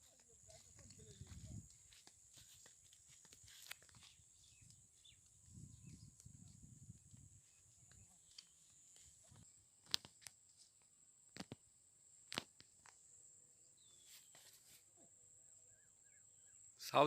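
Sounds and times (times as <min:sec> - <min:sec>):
footsteps on dry ground: 0:00.0 - 0:10.0.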